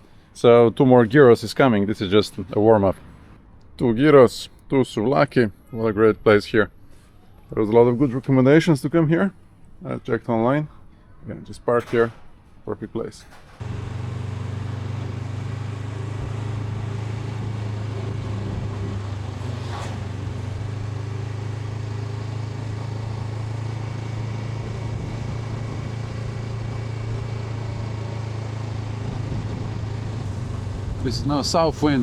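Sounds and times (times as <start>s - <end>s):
motorcycle engine humming: 13.6s - 32.0s
wind noise: 17.4s - 20.8s, 24.5s - 26.5s, 28.9s - 32.0s.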